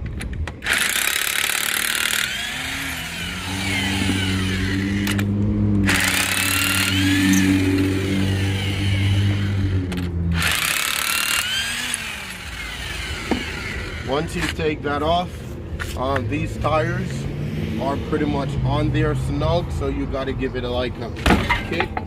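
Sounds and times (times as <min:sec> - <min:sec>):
impact wrench hammering: 0:00.6 - 0:05.2, 0:05.8 - 0:09.2, 0:09.8 - 0:14.1
motor humming: 0:00.6 - 0:14.1.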